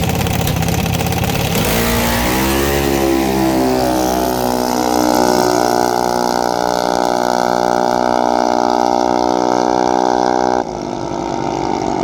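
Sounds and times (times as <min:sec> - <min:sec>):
dragster engine at high revs: 0:00.0 - 0:12.0.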